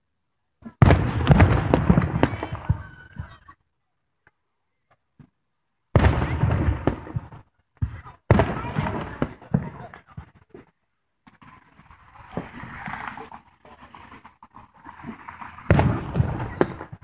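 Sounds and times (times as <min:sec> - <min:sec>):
firework crackling pops: 0:00.6 - 0:03.6, 0:06.0 - 0:17.0
firework shells bursting: 0:06.0 - 0:17.0.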